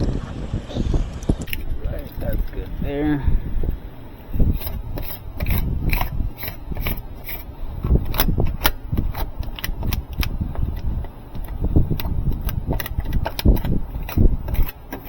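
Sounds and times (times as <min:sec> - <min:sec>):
tape rasping and rustling: 0:03.6 - 0:15.0.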